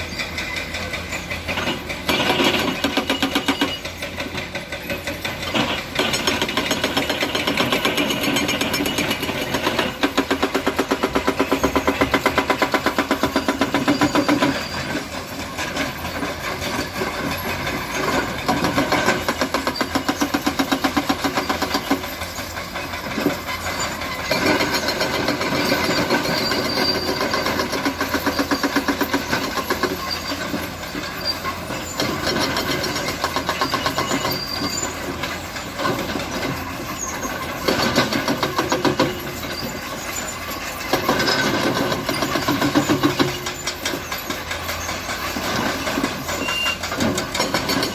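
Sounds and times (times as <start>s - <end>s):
concrete mixer diesel engine running: 0.0s - 47.9s.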